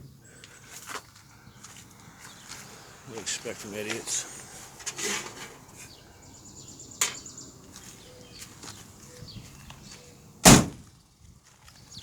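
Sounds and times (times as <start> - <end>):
loud thump: 10.4 - 10.9.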